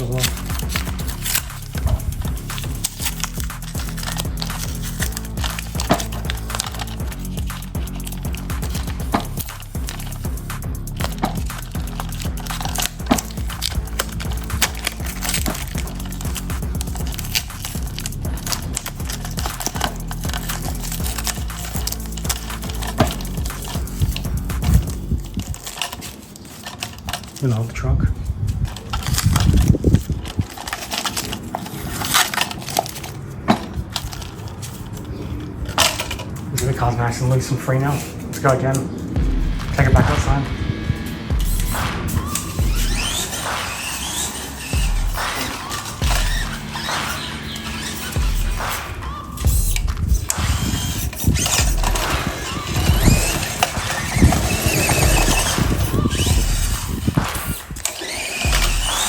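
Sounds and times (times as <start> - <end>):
heavier thumps: 0.0 - 25.7, 39.1 - 59.0
electric motor whining: 0.0 - 26.4, 38.8 - 59.0
plastic toy parts clicking and rattling: 0.0 - 36.7.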